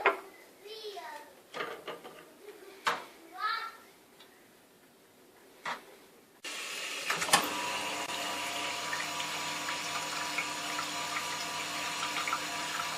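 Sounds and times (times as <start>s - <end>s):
espresso machine pump humming: 6.5s - 12.9s.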